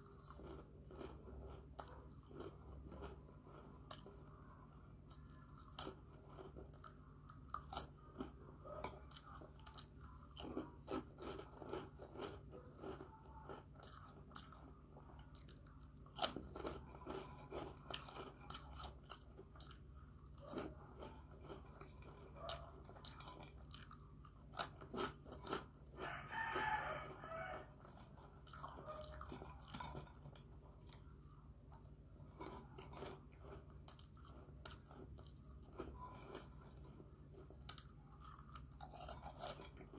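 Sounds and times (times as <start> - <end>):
crunching snack chips: 0.0 - 4.4, 5.1 - 31.4, 32.2 - 39.9.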